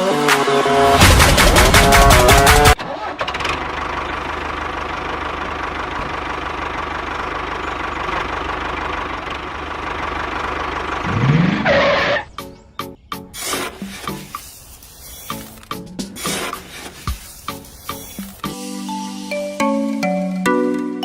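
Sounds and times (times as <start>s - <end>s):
music: 0.0s - 2.8s, 12.3s - 14.5s, 15.3s - 16.6s, 17.4s - 21.0s
small engine running: 1.0s - 12.2s, 13.4s - 18.5s.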